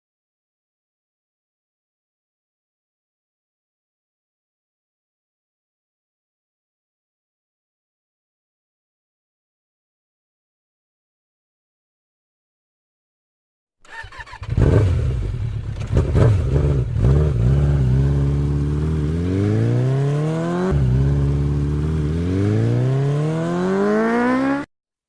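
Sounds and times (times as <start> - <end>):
motorcycle engine accelerating: 13.9 - 24.7.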